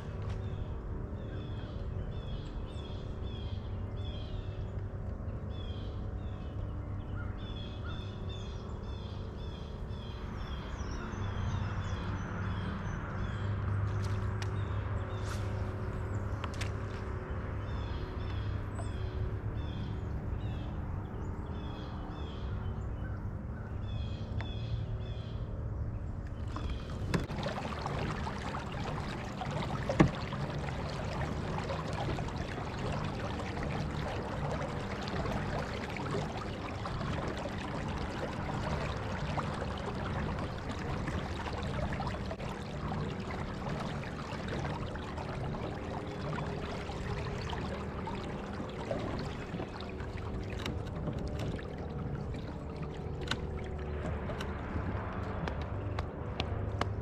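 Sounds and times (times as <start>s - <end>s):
birds chirping: 0.0s - 54.5s
steady low hum: 0.0s - 57.0s
water rushing along hull: 0.0s - 57.0s.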